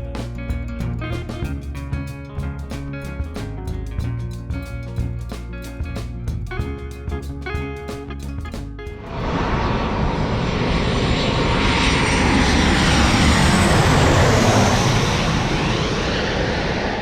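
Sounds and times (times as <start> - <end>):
guitar music: 0.0 - 16.7
jet airliner passing: 8.9 - 17.0.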